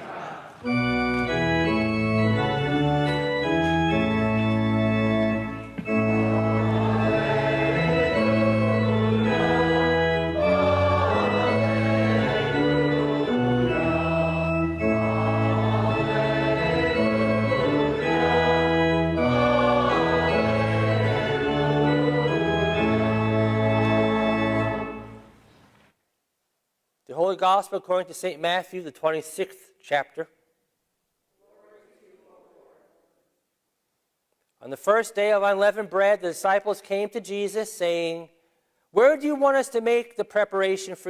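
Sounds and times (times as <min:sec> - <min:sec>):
congregation singing: 0:00.0 - 0:25.4
church organ chords: 0:00.6 - 0:25.4.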